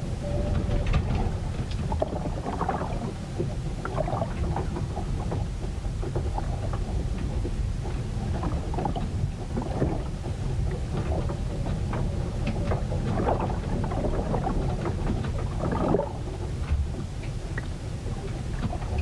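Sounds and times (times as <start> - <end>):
low rumble of storm: 0.0 - 19.0
water splashing: 12.7 - 17.8.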